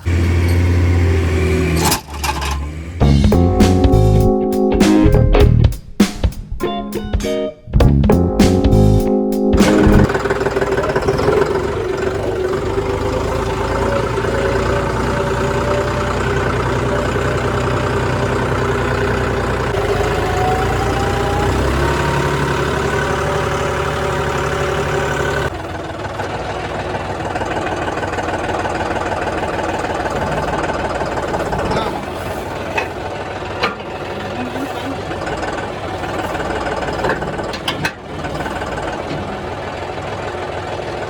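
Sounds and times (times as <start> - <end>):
vehicle engine running: 0.0 - 5.8, 7.8 - 41.0
intro music: 3.0 - 10.1.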